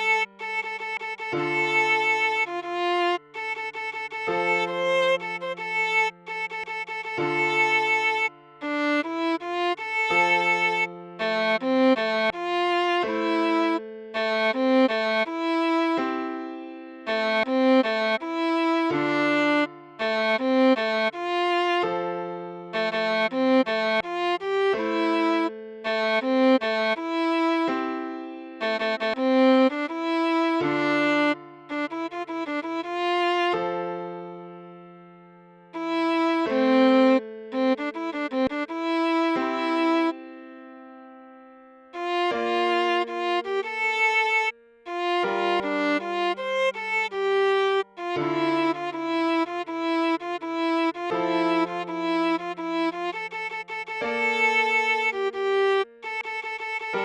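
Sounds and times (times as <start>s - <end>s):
viola melody: 0.0s - 57.0s.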